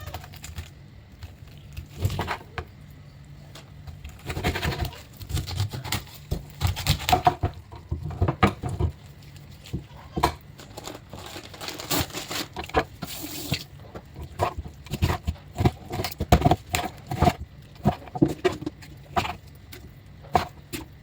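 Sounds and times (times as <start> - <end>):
objects tapping and clattering: 7.1 - 21.0.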